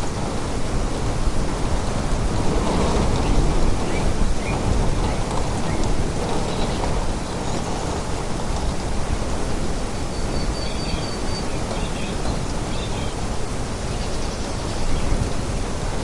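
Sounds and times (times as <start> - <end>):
rain: 0.0 - 16.0
wind: 0.0 - 16.0.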